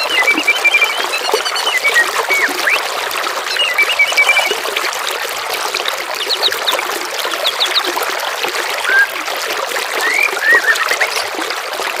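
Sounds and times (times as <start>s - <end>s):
water trickling: 0.0s - 12.0s
songbirds chirping: 3.6s - 4.6s.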